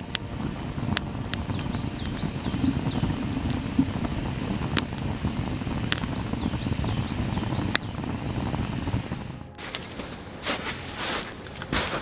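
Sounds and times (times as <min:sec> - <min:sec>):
campfire crackling and popping: 0:00.0 - 0:12.0
wind: 0:00.0 - 0:12.0
songbird whistling: 0:01.3 - 0:03.6, 0:05.7 - 0:08.4.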